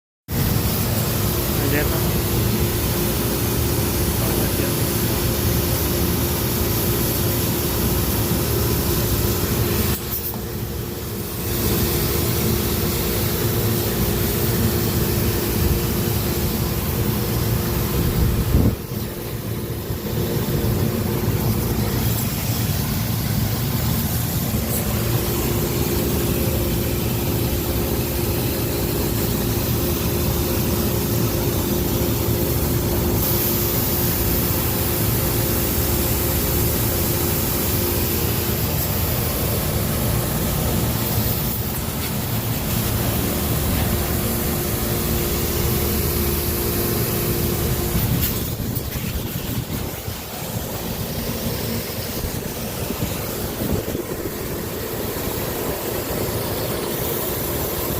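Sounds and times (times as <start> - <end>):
machinery humming and hissing: 0.3 - 57.9.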